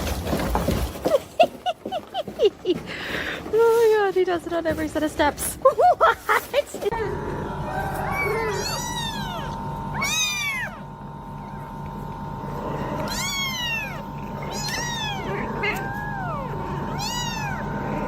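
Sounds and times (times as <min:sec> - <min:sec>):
steady background hum: 0:00.0 - 0:18.0
cat meowing: 0:08.0 - 0:10.9, 0:13.0 - 0:17.7.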